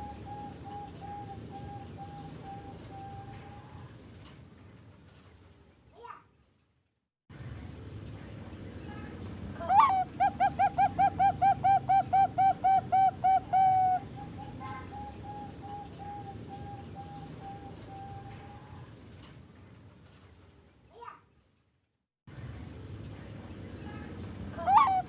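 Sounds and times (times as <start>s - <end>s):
dove cooing: 0.0s - 3.9s, 9.6s - 18.9s, 24.6s - 25.0s.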